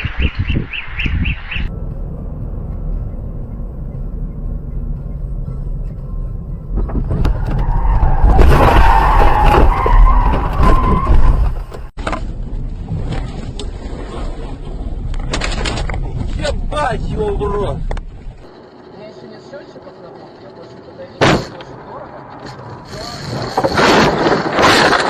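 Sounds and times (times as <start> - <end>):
car road rumble: 1.6 - 25.0
tyres skidding and squealing: 3.0 - 12.3, 15.5 - 25.0.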